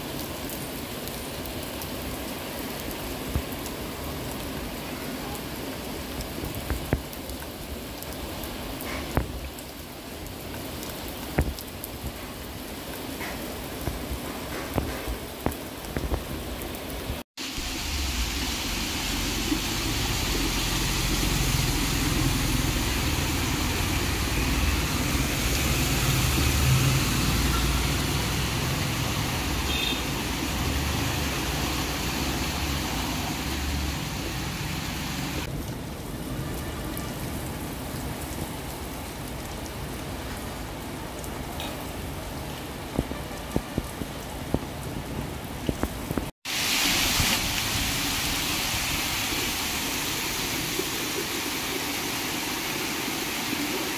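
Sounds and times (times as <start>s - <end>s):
heavy rain: 0.0s - 53.9s
tyres splashing through water: 17.4s - 35.5s.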